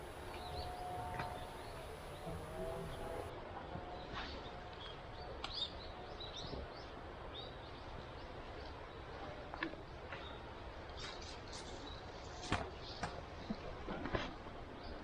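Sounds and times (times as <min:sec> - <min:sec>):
small birds chirping: 0:00.0 - 0:03.3.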